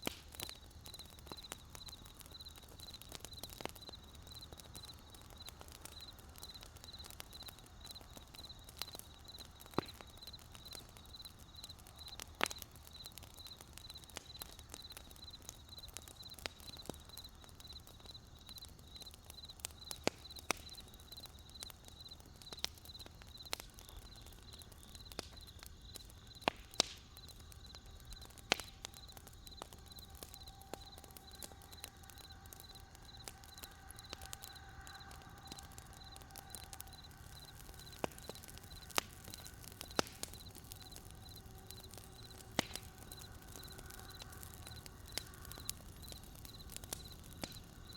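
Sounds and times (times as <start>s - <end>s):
campfire crackling and popping: 0.0s - 47.9s
faint steady tone: 0.2s - 47.9s
crickets chirping: 0.4s - 47.9s.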